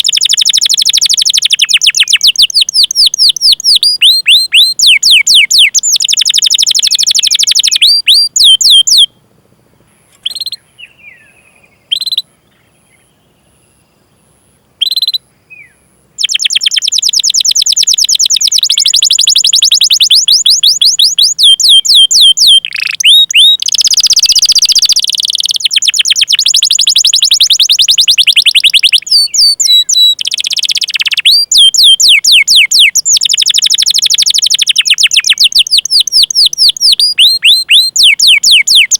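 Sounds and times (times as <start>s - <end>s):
canary singing: 0.0s - 9.2s, 10.1s - 13.9s, 14.8s - 38.9s.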